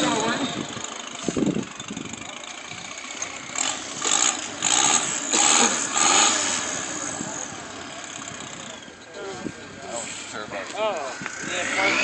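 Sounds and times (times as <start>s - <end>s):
steady engine noise: 0.0s - 12.0s
engine revving bursts: 3.3s - 8.7s, 11.2s - 12.0s.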